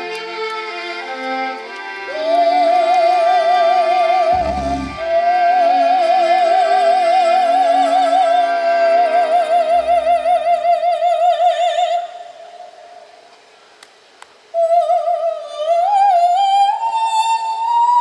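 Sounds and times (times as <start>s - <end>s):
orchestral accompaniment: 4.3s - 5.4s.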